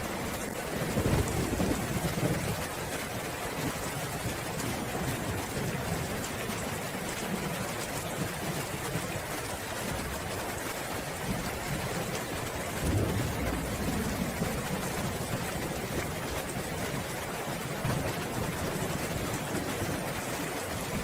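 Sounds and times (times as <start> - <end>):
steady rain falling: 0.0 - 21.0
thunder rumbling: 0.2 - 2.7, 12.6 - 21.0.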